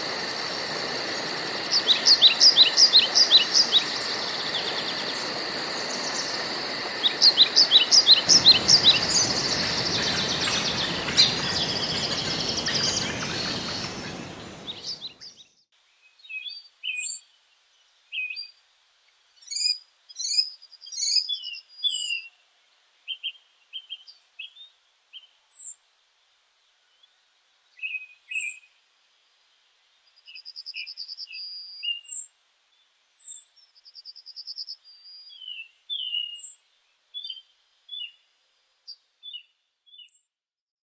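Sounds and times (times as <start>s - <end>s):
steady hiss: 0.0s - 15.2s
songbirds chirping and calling: 0.0s - 17.4s, 19.4s - 22.4s, 27.8s - 28.7s, 30.0s - 38.3s, 38.9s - 40.3s
bird trills: 7.0s - 15.4s.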